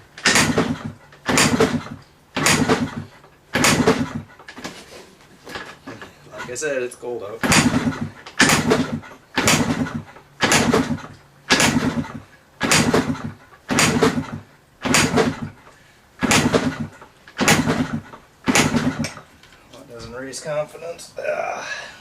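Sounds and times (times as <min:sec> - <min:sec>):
motorcycle engine kick-start cranking: 0:00.2 - 0:04.7, 0:07.4 - 0:19.3.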